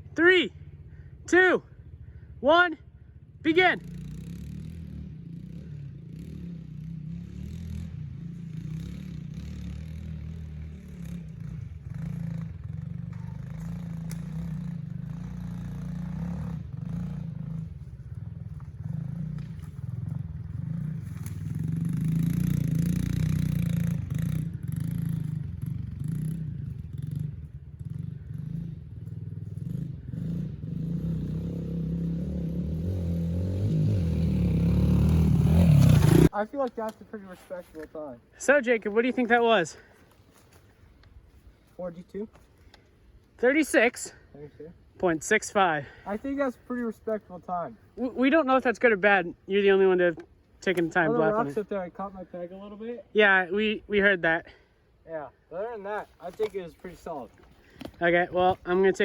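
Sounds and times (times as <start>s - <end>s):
pit bike engine revving: 3.4s - 36.4s, 56.3s - 59.0s.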